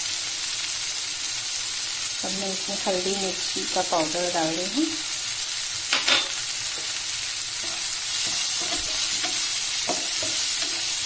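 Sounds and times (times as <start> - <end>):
masala sizzling in hot oil: 0.0 - 11.0
spatula scraping and tapping pan: 7.6 - 11.0.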